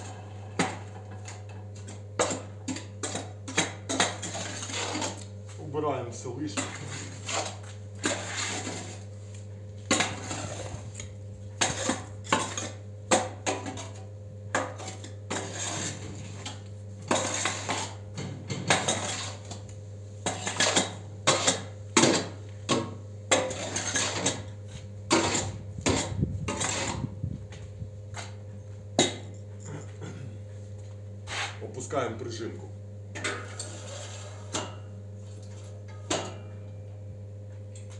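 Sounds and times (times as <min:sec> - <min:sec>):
steady low hum: 0:00.0 - 0:37.9
metal scrapes and clanks: 0:03.9 - 0:05.2, 0:06.5 - 0:09.1, 0:09.9 - 0:12.7, 0:14.8 - 0:16.5, 0:17.1 - 0:18.0, 0:18.7 - 0:19.6, 0:23.3 - 0:24.4, 0:25.1 - 0:27.1, 0:33.2 - 0:34.7.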